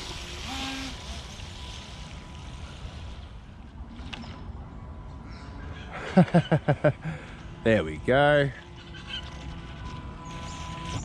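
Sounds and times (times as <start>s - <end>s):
electric motor whine: 0.0s - 3.9s, 6.9s - 11.0s.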